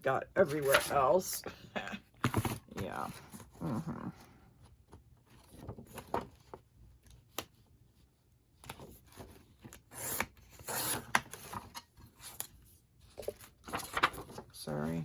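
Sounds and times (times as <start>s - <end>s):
paper rubbing and rustling: 10.7s - 14.6s.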